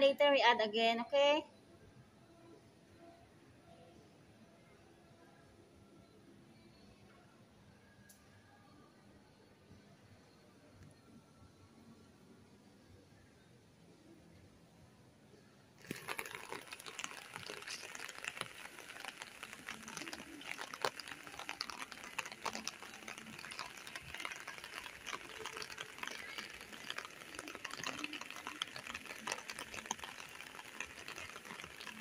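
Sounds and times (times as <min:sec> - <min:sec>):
rain pattering: 0:15.8 - 0:32.0.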